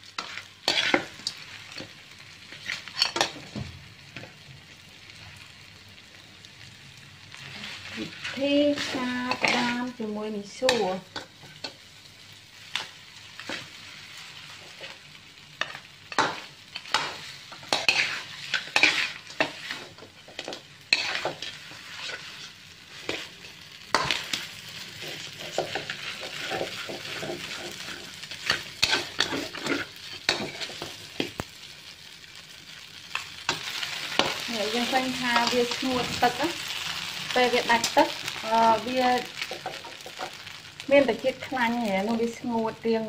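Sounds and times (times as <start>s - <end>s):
food sizzling in a wok: 0.0s - 43.0s
metal spatula scraping a wok: 0.2s - 1.4s, 7.4s - 11.8s, 15.6s - 31.4s, 33.5s - 36.6s.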